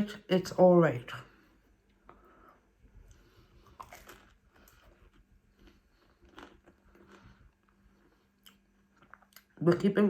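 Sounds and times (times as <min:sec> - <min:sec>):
person chewing food: 0:01.4 - 0:09.6.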